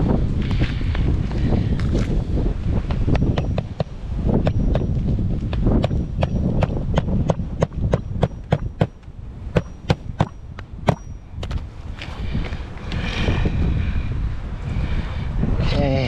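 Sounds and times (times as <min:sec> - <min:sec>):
wind rumble on microphone: 0:00.0 - 0:16.0
hammer striking nail: 0:03.2 - 0:11.6.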